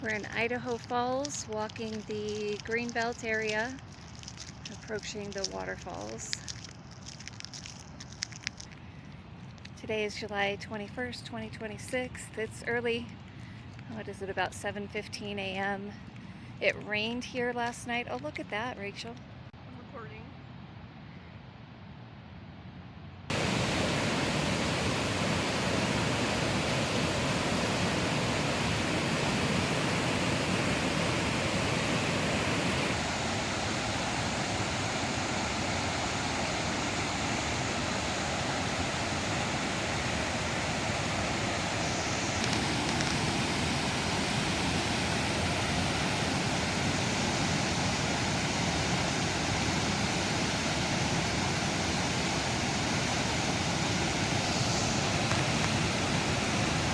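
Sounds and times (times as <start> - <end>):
waterfall rushing: 23.3 - 56.9.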